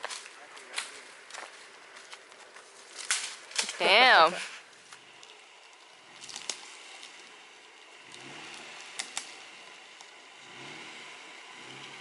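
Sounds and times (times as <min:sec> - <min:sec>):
vehicle engine revving gently: 0:06.0 - 0:12.0
sharp clicks: 0:08.1 - 0:09.4.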